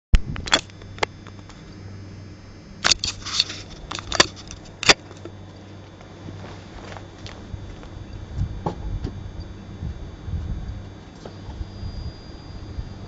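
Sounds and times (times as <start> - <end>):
sharp clicks and knocks: 2.8 - 5.4.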